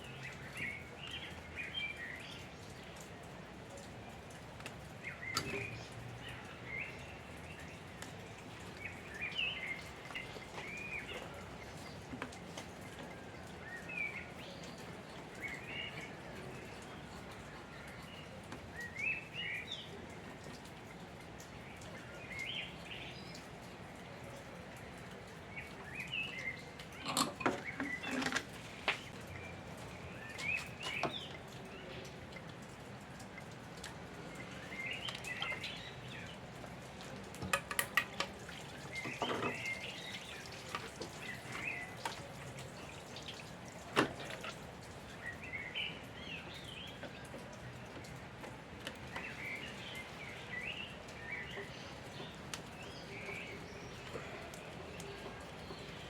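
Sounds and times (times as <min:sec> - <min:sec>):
small birds chirping: 0:34.1 - 0:37.0, 0:38.1 - 0:56.0.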